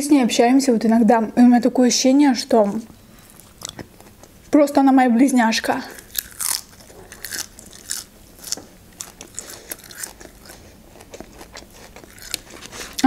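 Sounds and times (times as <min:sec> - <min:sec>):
crisp crunches of chewing leaf: 0:05.9 - 0:13.0.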